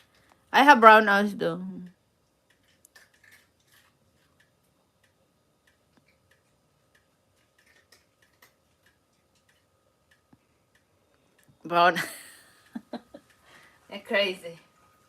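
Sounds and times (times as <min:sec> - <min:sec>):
faint small ticks: 0:02.4 - 0:11.6.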